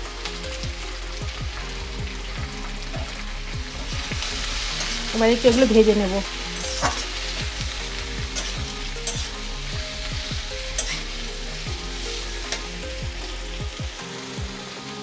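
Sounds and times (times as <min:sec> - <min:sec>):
vegetables sizzling in oil: 0:00.0 - 0:15.0
spatula scraping a steel pan: 0:04.7 - 0:05.1, 0:06.5 - 0:07.4, 0:08.3 - 0:09.4, 0:10.7 - 0:11.2.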